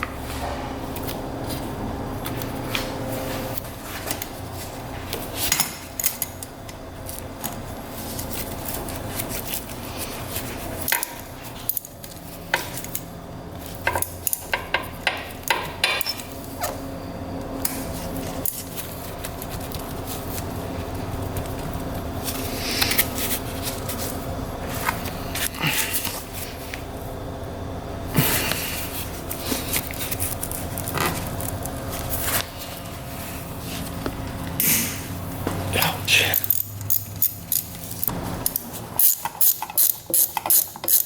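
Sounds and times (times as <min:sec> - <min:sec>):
steady low hum: 0:00.0 - 0:41.0
metal tools clinking: 0:35.8 - 0:41.0.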